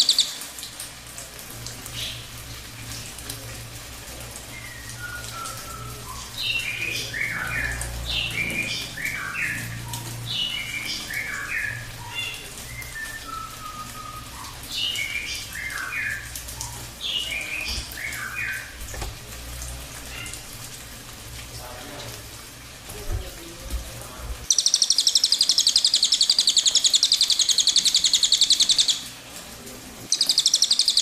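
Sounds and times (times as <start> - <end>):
bird whistled song: 0.0 - 0.4, 4.5 - 16.3, 17.1 - 18.7, 24.5 - 29.0, 30.1 - 31.0.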